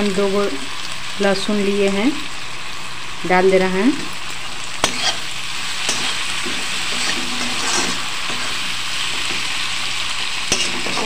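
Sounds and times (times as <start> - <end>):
vegetables sizzling in oil: 0.0 - 11.0
metal spatula scraping a pan: 4.8 - 9.8, 10.5 - 11.0.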